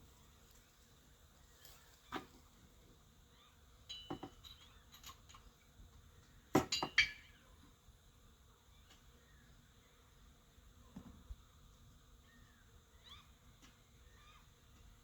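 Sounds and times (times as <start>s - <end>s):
metal tools clinking and knocking: 3.9s - 5.5s, 6.6s - 7.3s.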